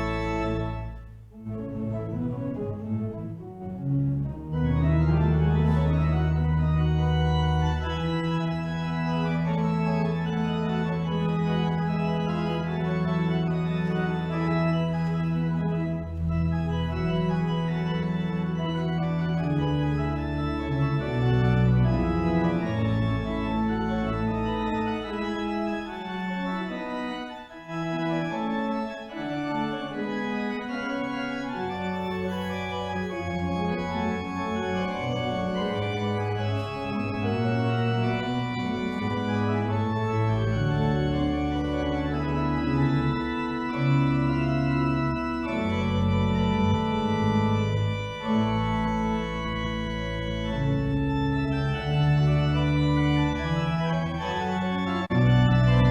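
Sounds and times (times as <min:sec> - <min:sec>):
organ playing sustained chords: 0:00.0 - 0:55.9.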